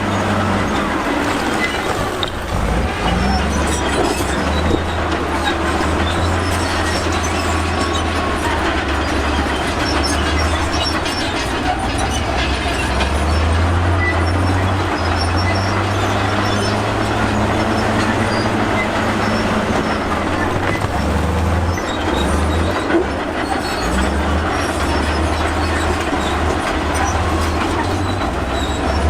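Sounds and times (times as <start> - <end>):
diesel machinery engine drone: 0.0 - 29.0
metallic clatter and rattling: 0.7 - 16.0.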